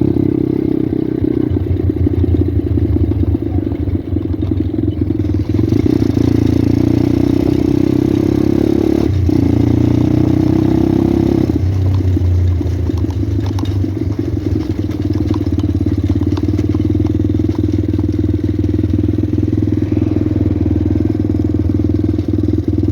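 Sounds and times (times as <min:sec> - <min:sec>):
small motorbike engine running: 0:00.0 - 0:22.9.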